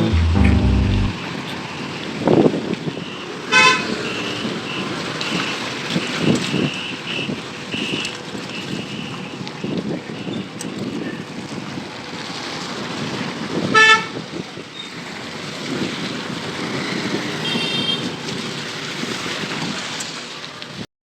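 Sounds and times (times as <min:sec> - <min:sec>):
high-pitched horn: 0:00.0 - 0:01.2.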